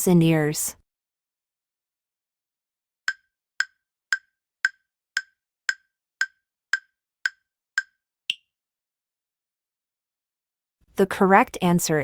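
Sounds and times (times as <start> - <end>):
sharp wood-block ticks: 3.1 - 8.5.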